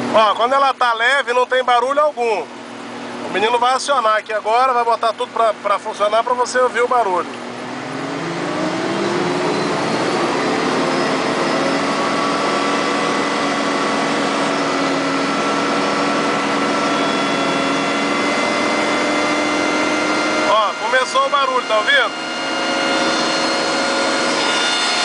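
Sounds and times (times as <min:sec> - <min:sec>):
heavy machine engine running: 0:06.2 - 0:25.0
whining tones: 0:06.7 - 0:25.0.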